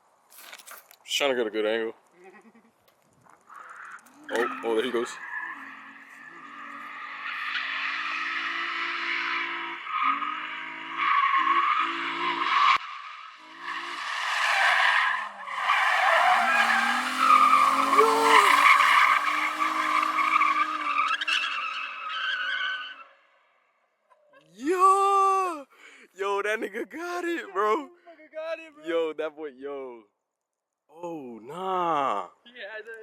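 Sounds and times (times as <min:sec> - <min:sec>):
tires squealing: 0:03.3 - 0:23.3
car engine revving: 0:03.9 - 0:14.4, 0:15.2 - 0:22.1.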